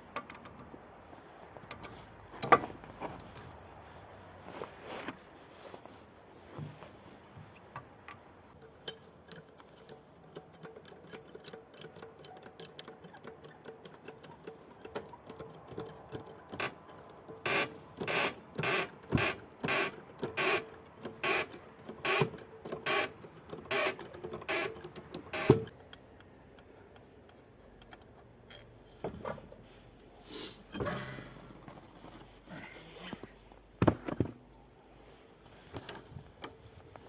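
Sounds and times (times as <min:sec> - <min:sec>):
car suspension squeaking: 0:17.4 - 0:20.6, 0:21.2 - 0:25.7.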